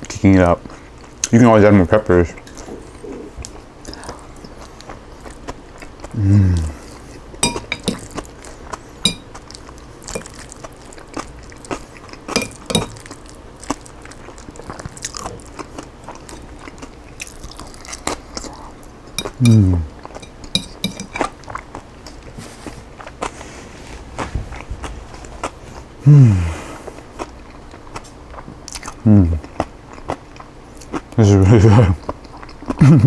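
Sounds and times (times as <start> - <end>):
chewing and crunching: 0.0 - 26.1, 26.9 - 33.0
person humming mmm: 6.1 - 6.8, 19.4 - 19.9, 26.0 - 26.6
utensil clinking on a dish: 7.4 - 8.3, 9.0 - 9.5, 10.1 - 10.4, 12.3 - 13.1, 19.2 - 21.3.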